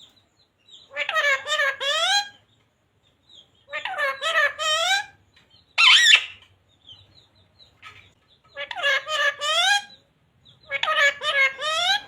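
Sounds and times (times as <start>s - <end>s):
parrot calling harshly: 0.9s - 2.4s, 3.7s - 5.2s, 5.8s - 6.4s, 8.6s - 9.9s, 10.6s - 12.0s.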